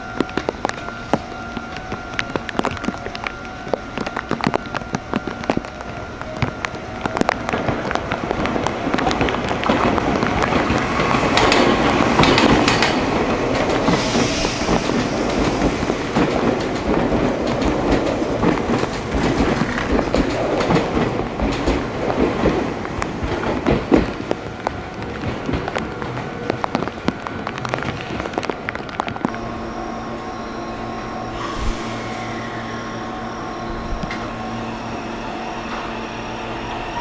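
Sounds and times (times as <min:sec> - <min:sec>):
train wheels clattering over rail joints: 0:09.1 - 0:24.4.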